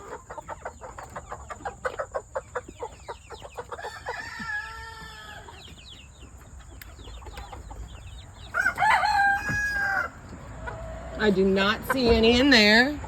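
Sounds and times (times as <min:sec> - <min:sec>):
chickens clucking: 0:00.0 - 0:13.0
rooster crowing: 0:08.5 - 0:10.2.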